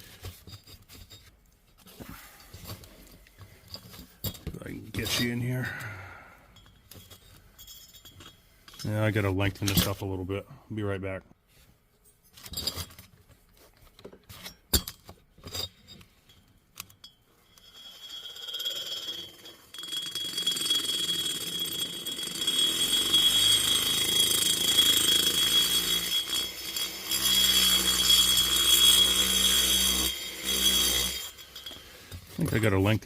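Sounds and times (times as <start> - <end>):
tool handling clicks and knocks: 0.0 - 4.7
rotary grinder whining on metal: 17.6 - 32.4.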